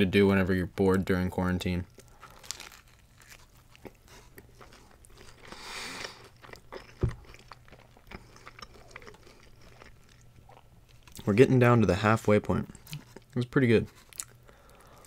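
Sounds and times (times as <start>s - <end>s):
biting crusty bread: 1.9s - 11.2s
chewing with crunches and clicks: 1.9s - 11.4s, 12.6s - 15.0s.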